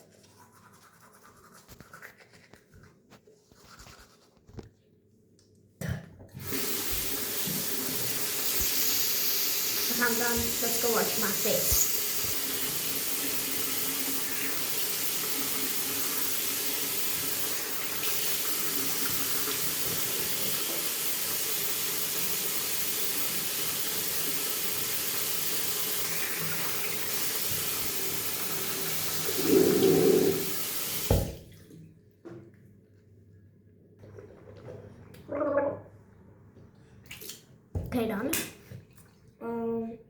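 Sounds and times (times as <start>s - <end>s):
sink tap running: 6.4s - 31.4s.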